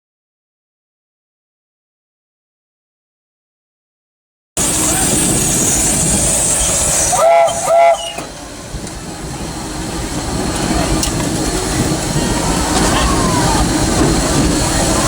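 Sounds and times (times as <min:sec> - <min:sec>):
steam whistle toots: 0:04.6 - 0:08.4
steam locomotive rumble and hiss: 0:04.6 - 0:15.0.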